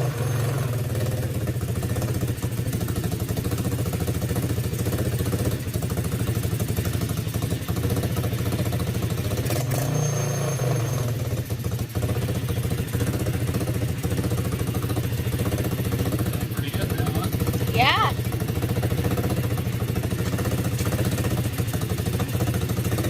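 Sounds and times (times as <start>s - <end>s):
small engine running: 0.0s - 23.0s.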